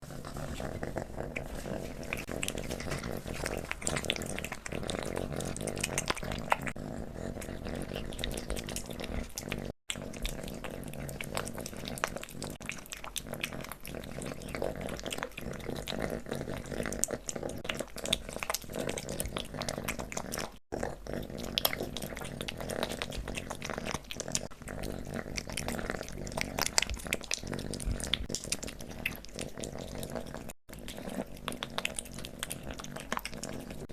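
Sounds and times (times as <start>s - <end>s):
kitten licking and smacking: 0.2s - 33.9s.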